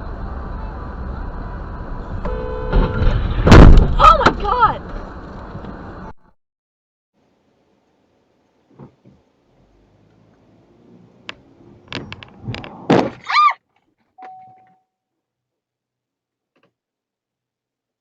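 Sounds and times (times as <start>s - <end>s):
vehicle collision bangs and thuds: 2.1s - 5.0s, 11.9s - 13.2s
brief steady beep: 14.2s - 14.9s.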